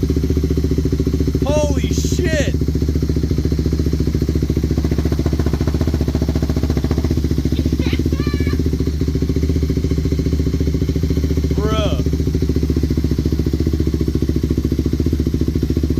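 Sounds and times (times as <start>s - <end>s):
atv engine idling: 0.0s - 15.9s.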